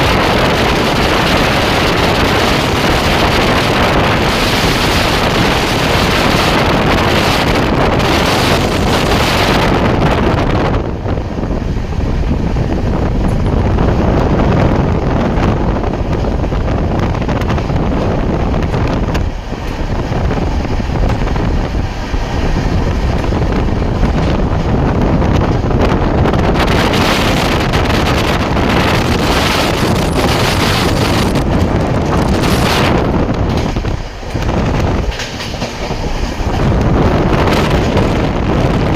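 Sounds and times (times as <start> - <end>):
train running noise: 0.0 - 38.9
wind buffeting microphone: 0.0 - 38.9.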